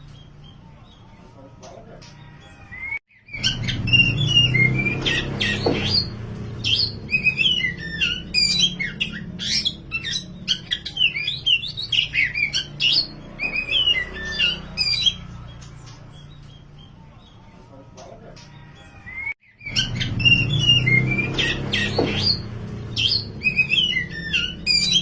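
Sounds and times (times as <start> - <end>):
bird singing whistled notes: 2.8 - 15.2, 19.1 - 25.0.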